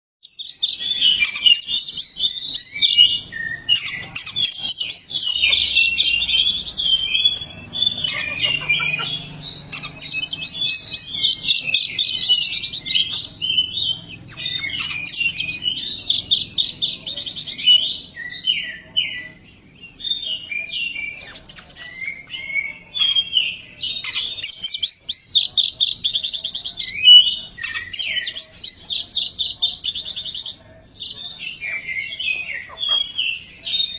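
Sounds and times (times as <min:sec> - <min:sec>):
bird singing: 0:00.2 - 0:33.9.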